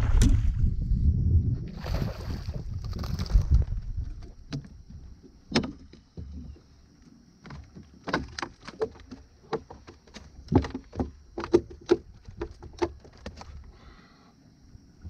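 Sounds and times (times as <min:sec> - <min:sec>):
knocks and clunks on a boat: 0:03.1 - 0:13.8.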